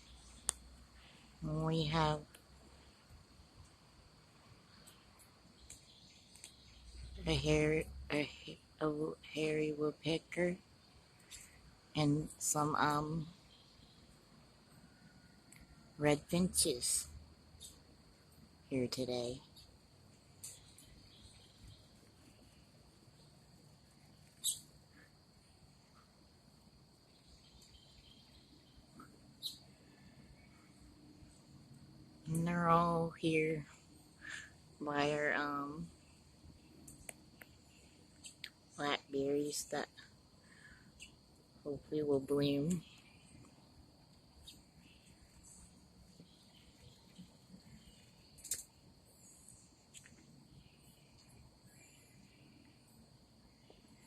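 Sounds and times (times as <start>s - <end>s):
small birds chirping: 0.0s - 54.0s
bird chirps: 20.4s - 22.6s, 24.1s - 25.0s, 27.1s - 30.2s.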